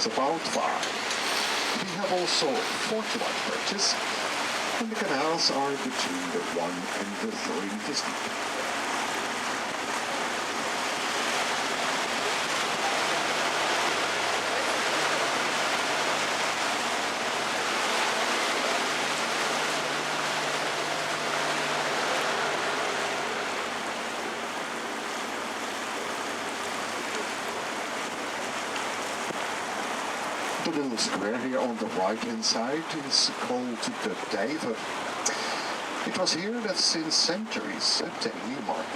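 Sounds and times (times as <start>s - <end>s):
faint boat motor hum: 0.0s - 38.9s
water and air rushing: 0.0s - 38.9s.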